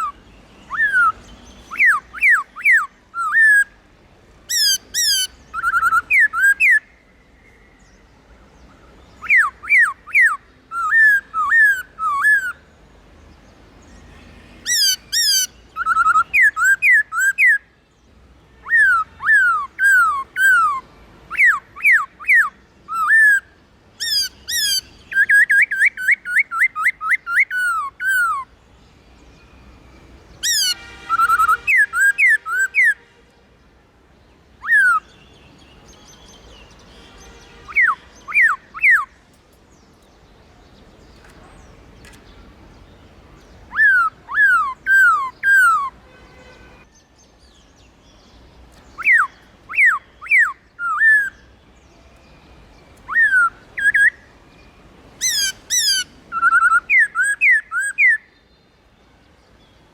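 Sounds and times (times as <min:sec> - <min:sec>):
bird whistling descending notes: 0:55.2 - 0:58.2.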